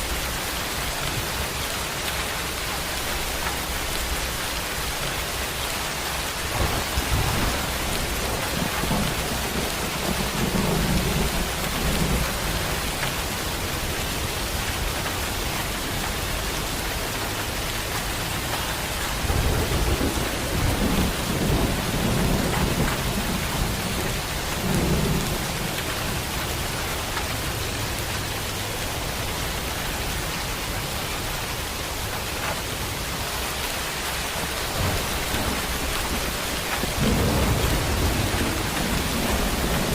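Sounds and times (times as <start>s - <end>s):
heavy rain: 0.0s - 39.9s
thunder rumbling: 4.0s - 28.0s, 33.9s - 39.9s.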